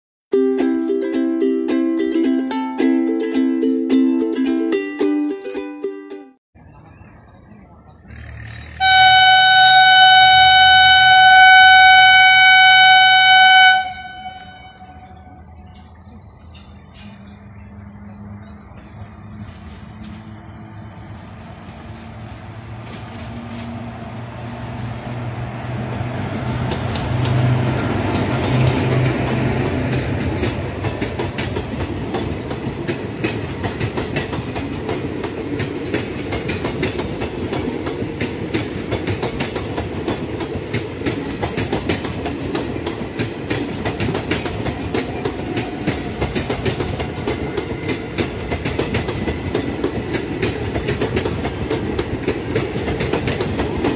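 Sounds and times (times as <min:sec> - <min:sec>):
electric locomotive hum: 0:06.6 - 0:53.9
train wheels clattering over rail joints: 0:25.7 - 0:53.9.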